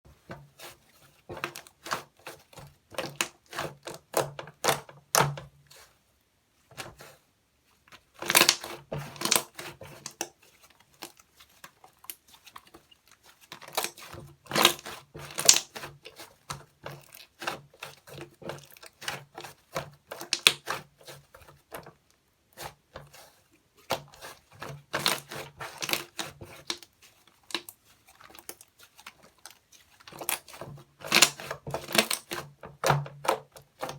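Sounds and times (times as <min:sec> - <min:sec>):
slime crackling and popping: 0:08.3 - 0:09.5.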